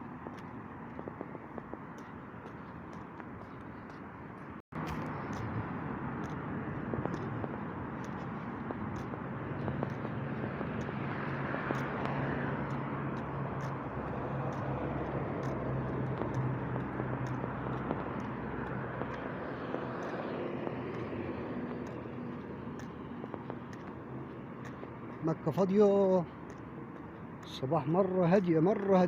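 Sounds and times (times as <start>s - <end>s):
car engine hum: 0.0s - 27.7s
road and tyre noise: 0.0s - 29.0s.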